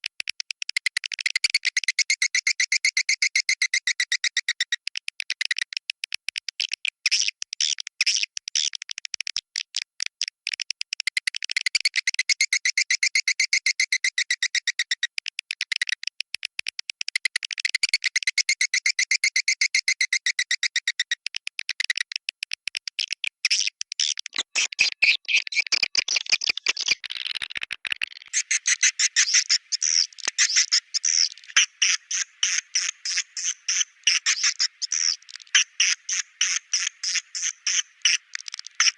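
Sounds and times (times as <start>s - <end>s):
rapid high bird chirping: 23.5s - 38.9s.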